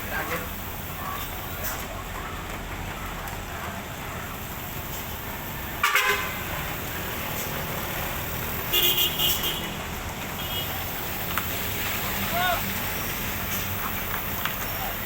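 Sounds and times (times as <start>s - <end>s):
engine rumble: 0.0s - 15.0s
vehicle horn honking: 5.8s - 6.5s, 8.7s - 9.8s, 10.4s - 10.9s.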